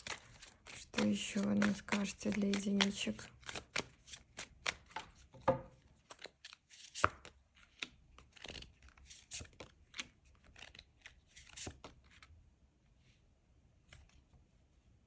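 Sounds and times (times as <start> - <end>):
cards being shuffled: 0.0 - 5.4, 6.0 - 12.3.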